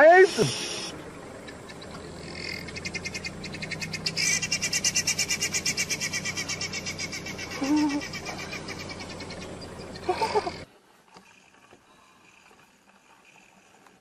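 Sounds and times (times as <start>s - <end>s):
bird rapid rattling call: 0.3s - 10.6s.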